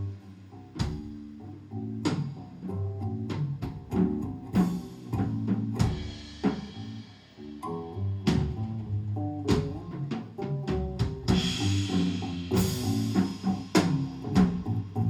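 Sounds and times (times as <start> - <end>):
live band playing: 3.1 - 15.0
drum and cymbal hits: 3.6 - 7.3, 10.7 - 15.0.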